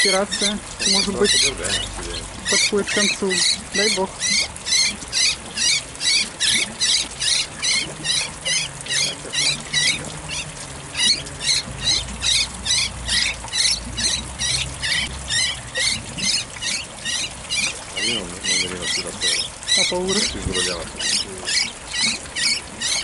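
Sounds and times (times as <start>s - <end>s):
bird squealing in distress: 2.5s - 23.0s.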